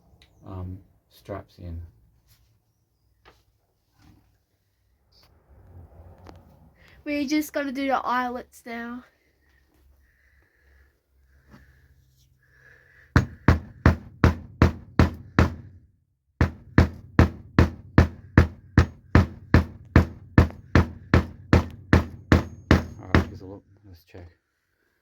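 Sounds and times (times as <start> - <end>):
hammer striking metal tool: 16.4 - 23.4.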